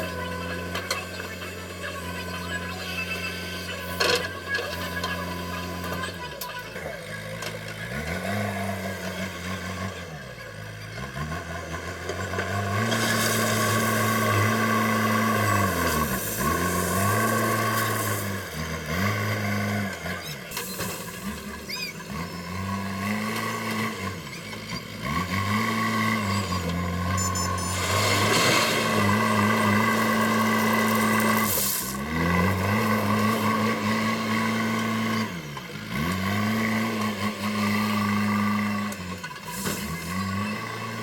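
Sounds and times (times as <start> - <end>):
diesel engine revving: 0.0 - 41.0.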